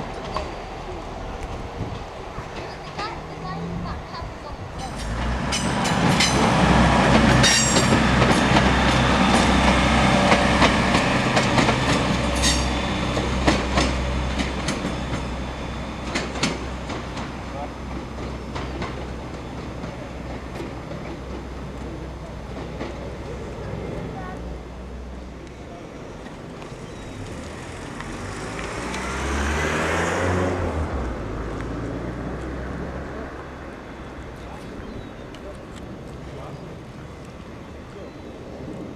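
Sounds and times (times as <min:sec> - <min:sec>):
wheels clicking over rail joints: 0:00.0 - 0:24.6
train engine hum: 0:00.0 - 0:38.9.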